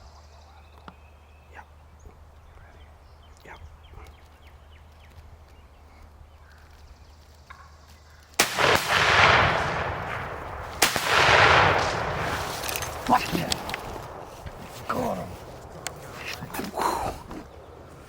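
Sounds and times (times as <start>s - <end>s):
songbirds chirping: 0.0s - 18.0s
shotgun blasts: 8.4s - 15.0s.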